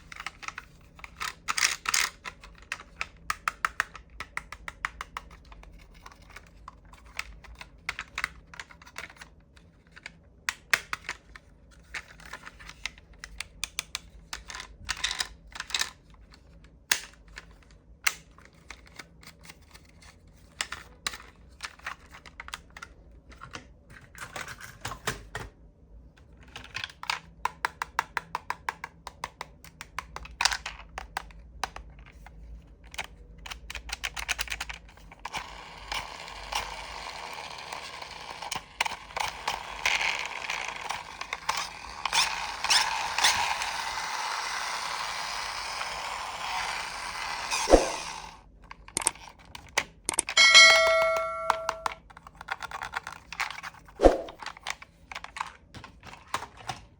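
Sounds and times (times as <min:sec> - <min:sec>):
model cars clicking and tapping: 0:32.9 - 0:48.0, 0:48.8 - 0:50.4.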